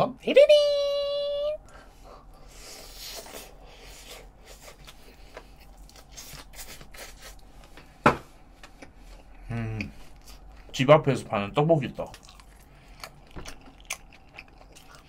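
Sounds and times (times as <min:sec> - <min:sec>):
person chewing wetly: 0:04.0 - 0:07.4, 0:12.0 - 0:15.0.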